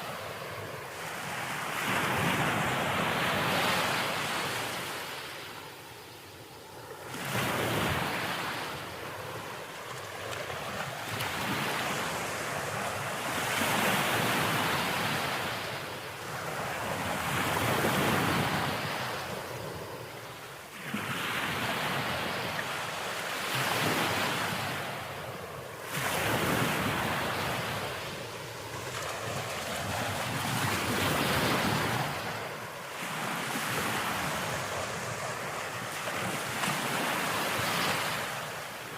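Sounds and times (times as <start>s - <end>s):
sea waves breaking: 20.7s - 38.9s.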